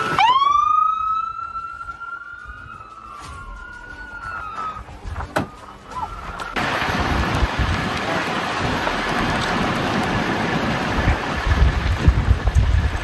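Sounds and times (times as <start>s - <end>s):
second siren rising: 0.0s - 6.6s
emergency siren wailing: 0.0s - 10.4s.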